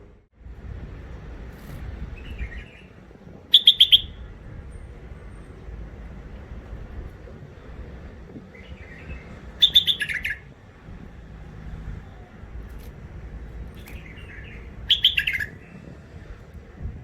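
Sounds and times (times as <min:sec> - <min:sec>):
steady low rumble: 0:00.0 - 0:17.0
sharp loud bird chirps: 0:02.2 - 0:04.2, 0:08.6 - 0:10.5, 0:13.8 - 0:15.7
bird chattering: 0:03.5 - 0:04.2, 0:08.6 - 0:10.5, 0:13.8 - 0:15.7.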